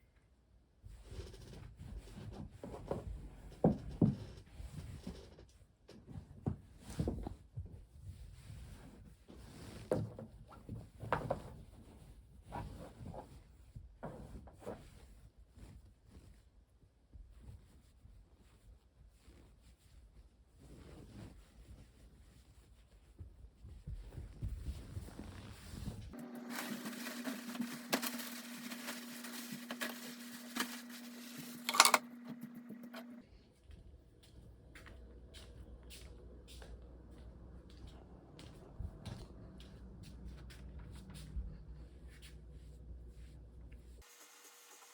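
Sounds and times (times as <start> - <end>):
objects knocking and rubbing: 26.2 - 33.2
small machine humming: 26.2 - 33.2
clicks and rattles: 27.1 - 32.1.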